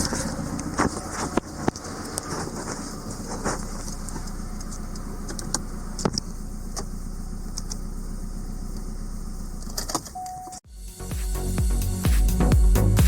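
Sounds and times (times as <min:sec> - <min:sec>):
car engine idling: 0:00.0 - 0:13.0
electronic music: 0:10.6 - 0:13.0.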